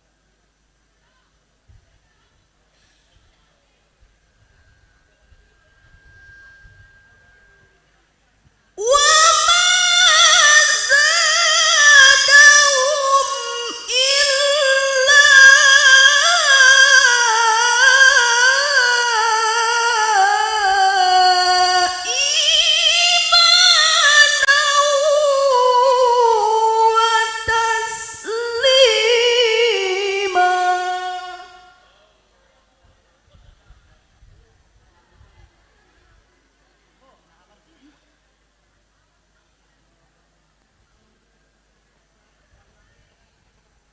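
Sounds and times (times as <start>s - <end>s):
woman chanting melodically: 8.7s - 32.2s.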